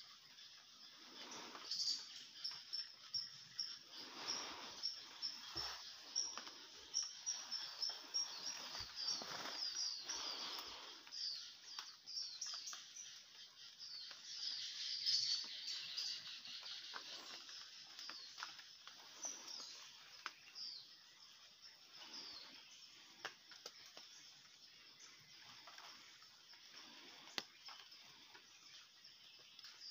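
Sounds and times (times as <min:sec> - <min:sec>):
birds chirping and twittering: 0:00.0 - 0:29.9
soft rustle: 0:03.7 - 0:11.9.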